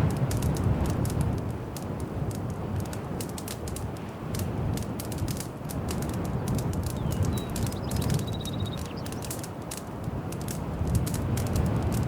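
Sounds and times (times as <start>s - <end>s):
low rumble of flames: 0.0s - 12.0s
wood fire crackling and popping: 0.0s - 12.0s
faint high chirp: 7.0s - 9.2s.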